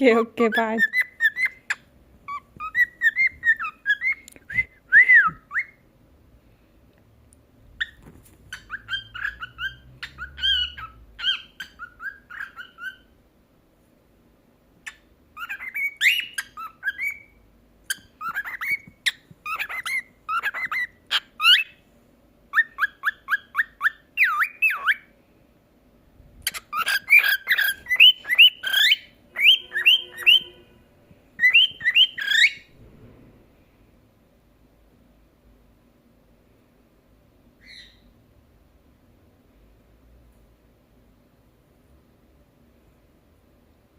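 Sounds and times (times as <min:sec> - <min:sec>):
cockatiel chirping and whistling: 0:00.8 - 0:04.7, 0:05.3 - 0:05.8, 0:07.8 - 0:13.1, 0:14.9 - 0:21.8, 0:22.5 - 0:25.1, 0:26.4 - 0:30.6, 0:31.4 - 0:32.7, 0:37.6 - 0:38.0.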